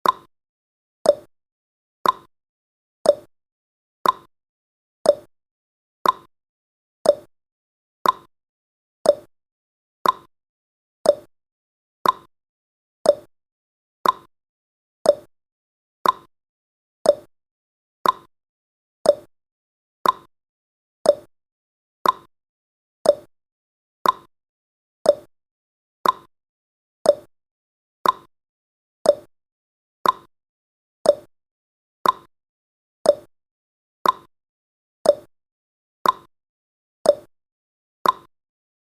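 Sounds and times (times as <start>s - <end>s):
clock ticking: 2.0s - 2.3s, 4.0s - 4.3s, 6.0s - 6.3s, 8.0s - 8.3s, 10.0s - 10.3s, 12.0s - 12.3s, 14.0s - 14.3s, 15.1s - 15.3s, 16.0s - 16.3s, 18.0s - 18.3s, 20.0s - 20.3s, 21.1s - 21.3s, 22.0s - 22.3s, 24.0s - 24.3s, 26.0s - 26.3s, 28.0s - 28.3s, 29.1s - 29.3s, 30.0s - 30.3s, 31.1s - 31.3s, 32.0s - 32.3s, 33.1s - 33.3s, 34.0s - 34.3s, 35.1s - 35.3s, 36.0s - 36.3s, 38.0s - 38.3s.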